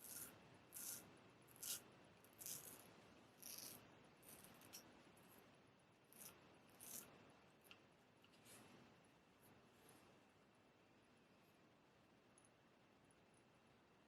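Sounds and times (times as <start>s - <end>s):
razor scraping stubble: 0.0s - 4.9s, 6.1s - 7.1s.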